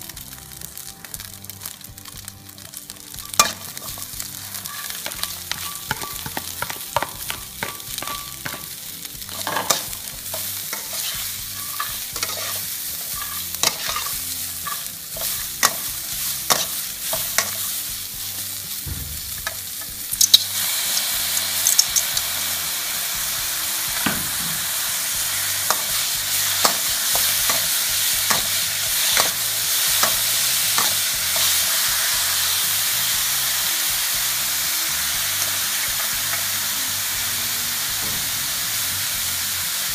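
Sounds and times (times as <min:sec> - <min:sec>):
oil sizzling: 0:00.0 - 0:39.9
metal spatula scraping a wok: 0:03.2 - 0:17.8.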